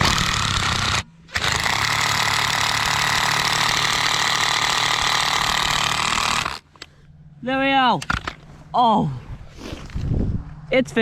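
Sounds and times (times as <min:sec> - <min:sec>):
power driver rattling: 0:00.0 - 0:06.9.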